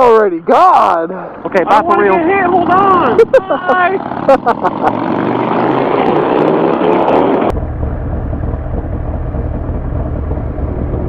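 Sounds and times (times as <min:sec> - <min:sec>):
motorcycle engine accelerating: 0:02.2 - 0:11.0
wind rush: 0:05.0 - 0:11.0
steady low rumble: 0:07.5 - 0:11.0.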